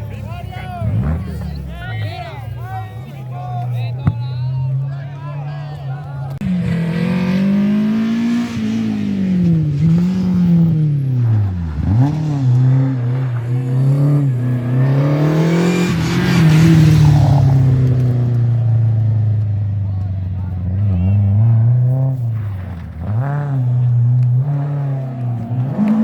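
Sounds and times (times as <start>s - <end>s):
rally car engine revving: 0.0s - 2.1s, 6.2s - 26.0s.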